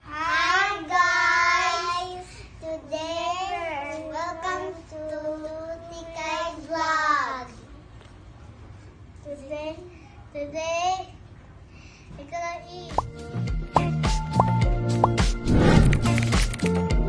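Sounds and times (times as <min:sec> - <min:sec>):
child singing: 0:00.0 - 0:07.6.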